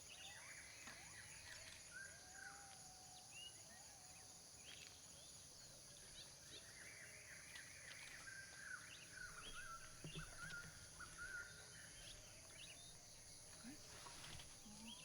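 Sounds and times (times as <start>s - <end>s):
faint bird chirps and whistles: 6.6s - 15.0s.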